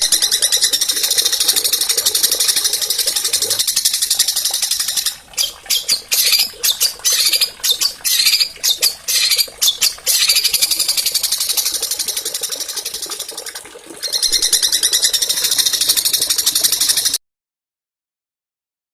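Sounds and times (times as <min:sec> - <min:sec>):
songbirds chirping and trilling: 0:00.0 - 0:13.4.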